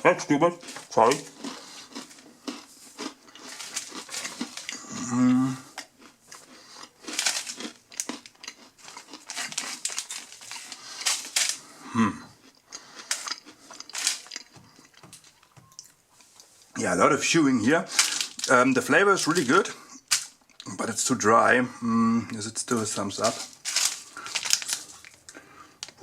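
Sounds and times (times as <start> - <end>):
crunching granola bar: 0.6 - 15.4, 17.9 - 20.7, 22.6 - 26.0
person humming: 4.8 - 5.8, 11.9 - 12.3.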